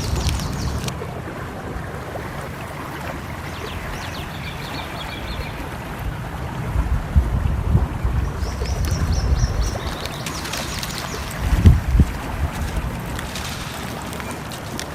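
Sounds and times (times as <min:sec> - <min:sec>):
stream flowing: 0:00.0 - 0:14.9
small bird chirping: 0:08.4 - 0:11.4.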